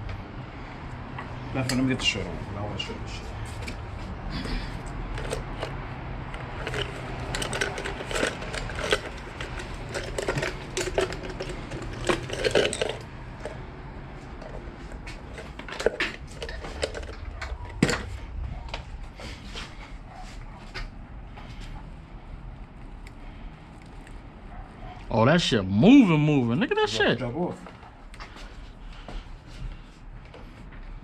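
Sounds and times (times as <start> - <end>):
hand tools clicking on plastic: 4.8 - 13.6.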